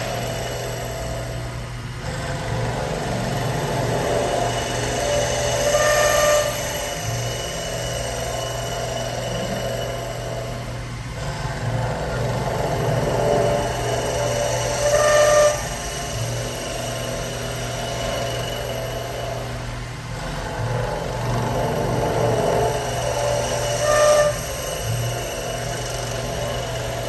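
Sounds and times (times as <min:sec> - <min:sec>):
cutting tool whine on wood: 0:00.0 - 0:27.0
lathe spindle hum: 0:00.0 - 0:27.0.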